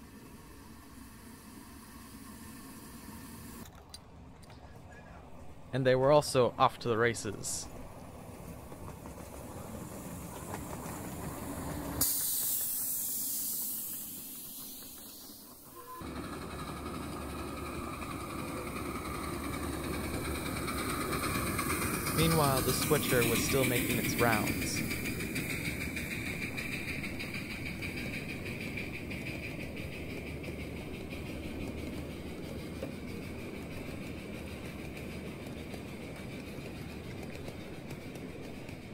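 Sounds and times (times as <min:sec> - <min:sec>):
loud hiss of escaping steam: 0:00.0 - 0:03.6, 0:09.4 - 0:30.6
steam locomotive rumbling: 0:00.0 - 0:03.6, 0:04.2 - 0:38.9.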